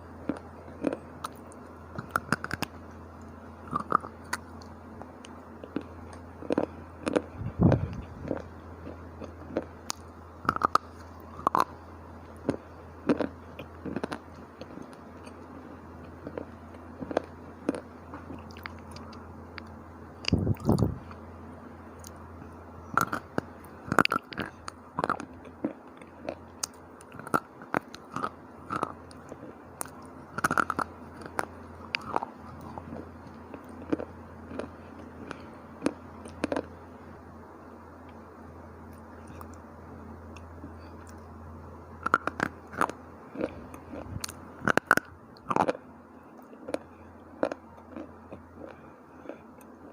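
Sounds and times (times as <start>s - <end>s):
low hum: 0.0s - 49.9s.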